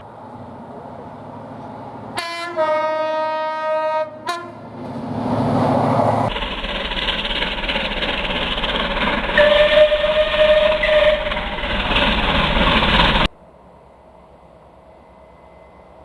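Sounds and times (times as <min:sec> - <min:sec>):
train passing on rails: 0:00.0 - 0:16.0
train horn: 0:02.1 - 0:04.7, 0:09.3 - 0:12.1.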